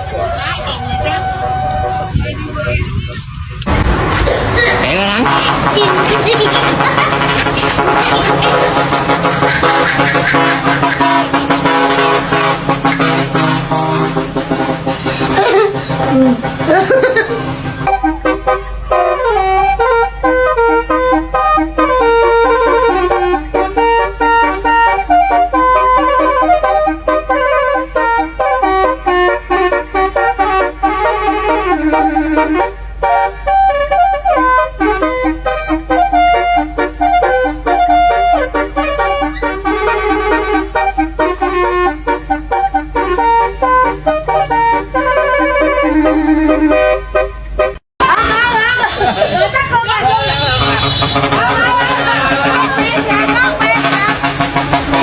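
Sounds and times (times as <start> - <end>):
musical air horn melody: 4.9 - 47.8, 48.8 - 55.0.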